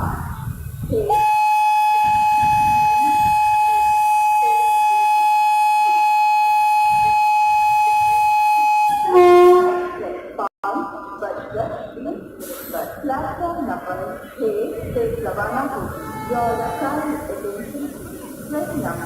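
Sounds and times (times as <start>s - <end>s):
locomotive horn blast: 1.1s - 10.4s, 15.7s - 19.0s.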